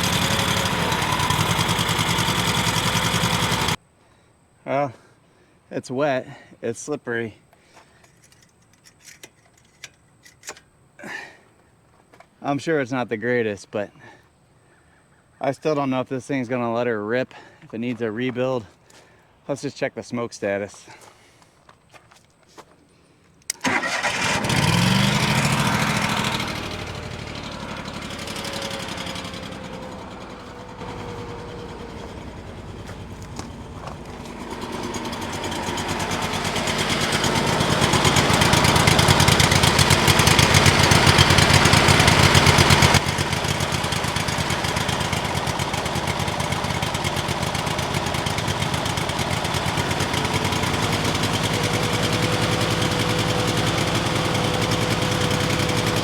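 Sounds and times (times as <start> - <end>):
engine starting and running: 0.0 - 3.8, 8.2 - 11.2, 23.5 - 56.0.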